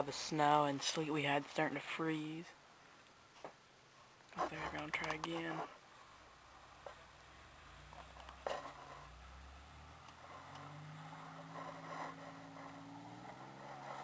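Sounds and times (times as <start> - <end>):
tires spinning: 6.6 - 14.0
distant car engine revving: 7.2 - 14.0.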